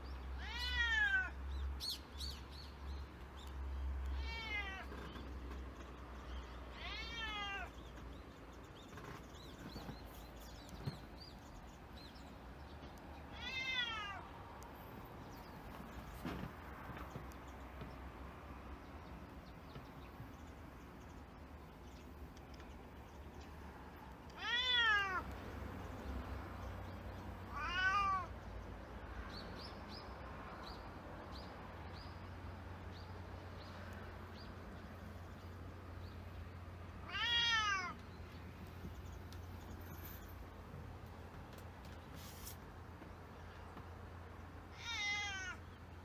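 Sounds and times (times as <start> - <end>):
cat meowing: 0.4 - 1.4, 4.2 - 5.0, 6.7 - 7.8, 13.3 - 14.3, 24.3 - 25.3, 27.5 - 28.3, 37.0 - 38.0, 44.7 - 45.6.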